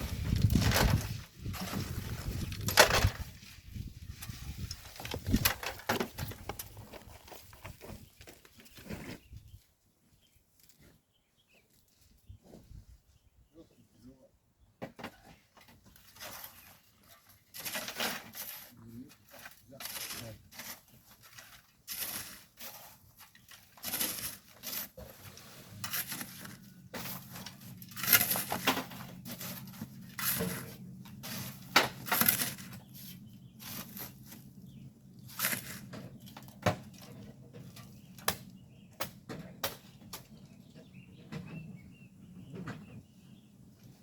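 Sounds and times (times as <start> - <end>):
tools scraping sand and gravel: 0.0 - 9.4, 15.9 - 38.4.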